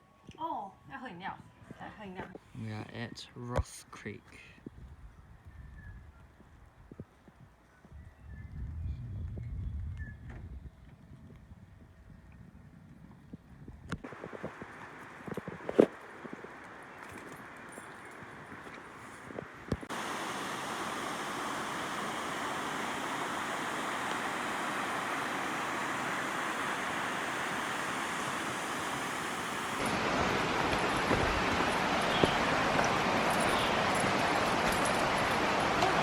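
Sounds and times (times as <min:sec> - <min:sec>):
stream running water: 0:19.7 - 0:36.0.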